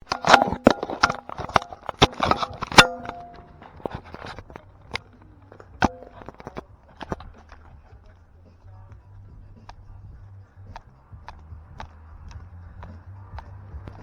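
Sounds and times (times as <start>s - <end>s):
sharp ringing knocks: 0.0s - 4.4s.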